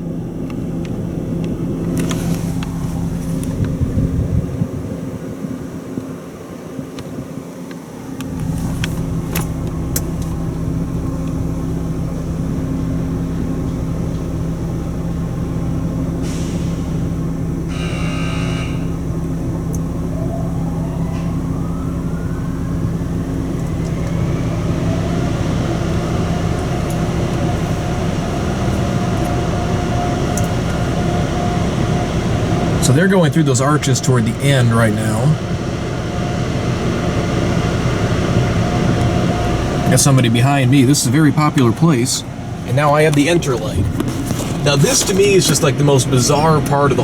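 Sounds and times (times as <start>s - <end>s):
car wash machinery droning: 0.0s - 47.0s
motor whine winding up: 17.6s - 35.4s.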